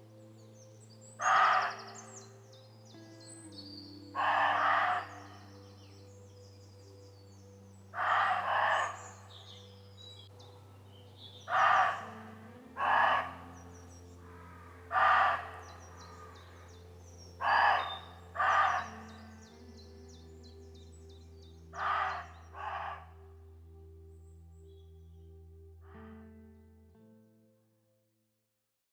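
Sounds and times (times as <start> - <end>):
small birds chirping faintly: 0.0 - 27.4
deer barking: 1.2 - 2.2, 4.2 - 5.4, 8.0 - 9.4, 11.5 - 19.4, 21.8 - 23.2.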